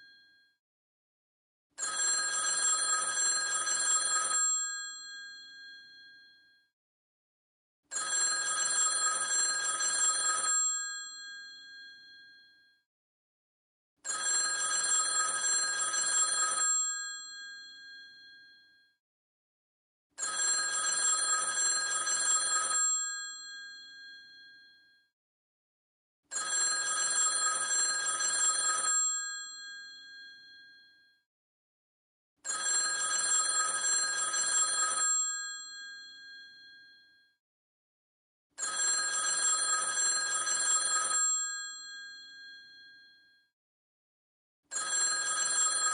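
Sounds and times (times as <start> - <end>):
telephone bell ringing: 1.8 - 6.4, 7.9 - 12.6, 14.0 - 18.8, 20.2 - 24.9, 26.3 - 31.0, 32.4 - 37.2, 38.6 - 43.2, 44.7 - 45.9.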